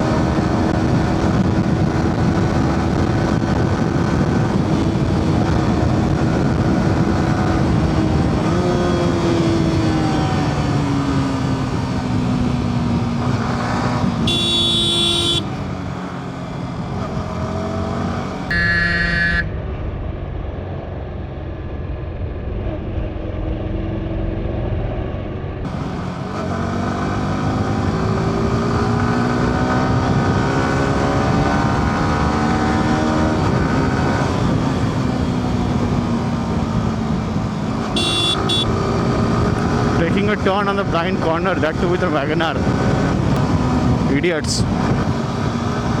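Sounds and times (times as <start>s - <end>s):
motorcycle engine accelerating: 0.0s - 19.0s, 23.0s - 40.1s
short horn toots: 14.2s - 15.5s, 18.5s - 19.5s, 38.0s - 38.8s.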